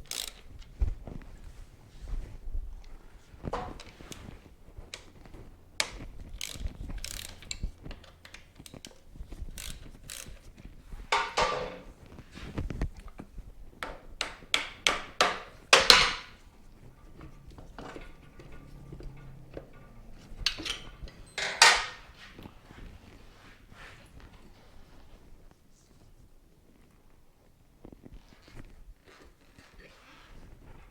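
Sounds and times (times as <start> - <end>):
ratchet wrench clicking: 0.0 - 0.4, 5.8 - 8.9, 9.5 - 10.4
metal tools clinking: 11.1 - 11.9, 15.2 - 22.4.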